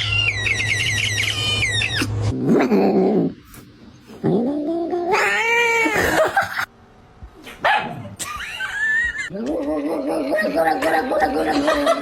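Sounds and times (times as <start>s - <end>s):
cat yowling: 4.8s - 6.2s.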